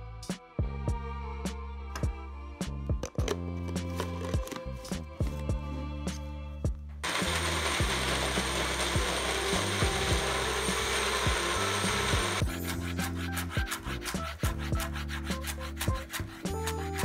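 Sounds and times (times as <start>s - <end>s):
background music with steady beat: 0.0s - 17.0s
electric blender running: 7.0s - 12.6s.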